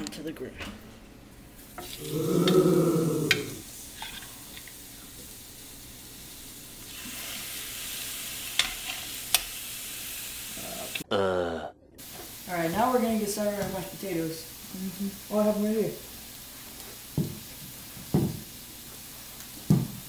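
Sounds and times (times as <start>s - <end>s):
chicken sizzling on grill pan: 1.6s - 11.0s, 12.0s - 20.0s
tongs clicking on pan: 8.5s - 9.5s.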